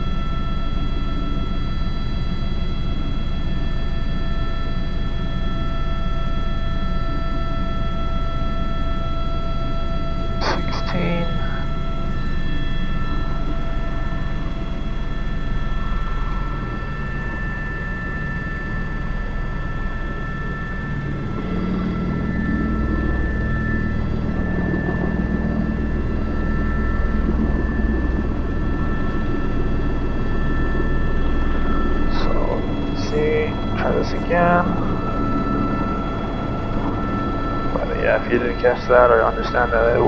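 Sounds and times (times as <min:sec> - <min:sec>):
helicopter turbine whine: 0:00.0 - 0:40.0
helicopter rotor thrum: 0:21.1 - 0:38.5.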